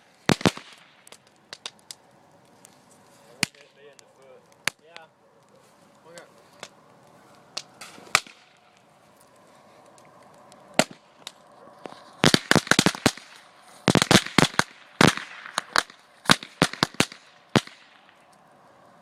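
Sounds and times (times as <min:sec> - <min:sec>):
firecrackers bangs and cracks: 0:00.0 - 0:02.7, 0:03.3 - 0:05.1, 0:07.5 - 0:08.9, 0:10.6 - 0:18.3
faint fire crackle: 0:00.0 - 0:19.0.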